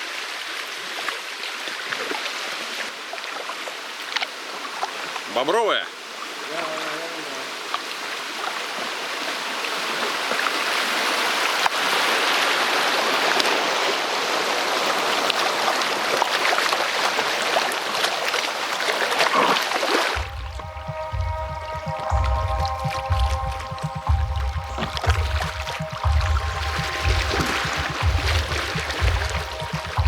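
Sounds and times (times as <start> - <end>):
river rushing and splashing: 0.0 - 30.0
music: 20.2 - 30.0.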